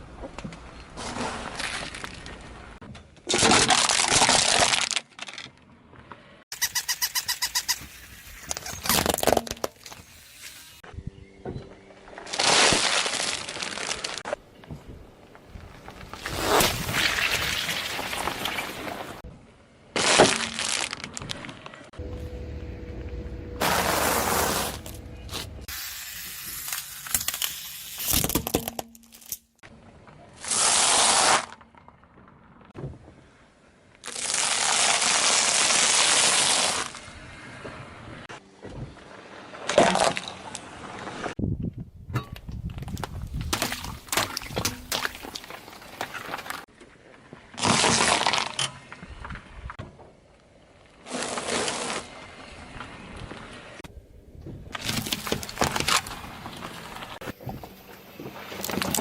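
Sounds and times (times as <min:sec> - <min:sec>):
objects crunching under tyre: 0:07.4 - 0:10.8, 0:11.6 - 0:19.3, 0:20.0 - 0:22.0, 0:23.6 - 0:25.8, 0:42.4 - 0:49.8, 0:50.7 - 0:53.9, 0:54.5 - 0:59.0.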